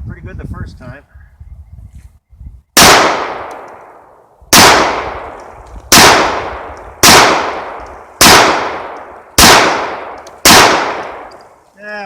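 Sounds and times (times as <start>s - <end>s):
pistol shots: 2.8s - 11.4s.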